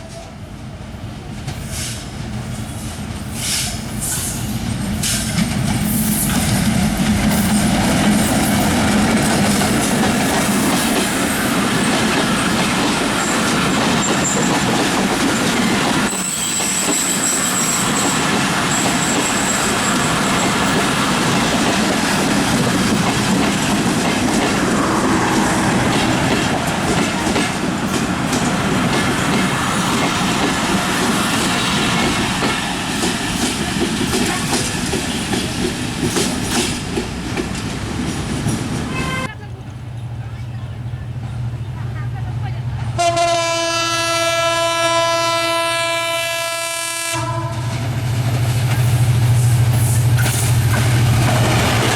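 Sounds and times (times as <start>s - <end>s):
train wheels clattering on rails: 1.3s - 39.3s, 47.5s - 51.9s
high wheel squeal: 16.1s - 20.8s.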